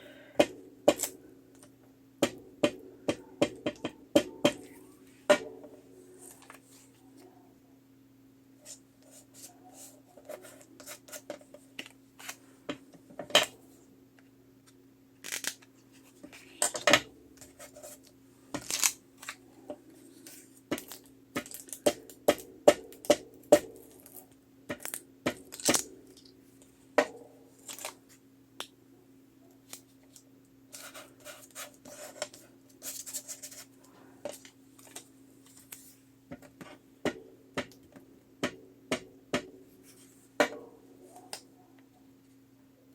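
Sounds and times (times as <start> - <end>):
faint steady hum: 0.0 - 42.9
paper rustling: 29.7 - 36.0.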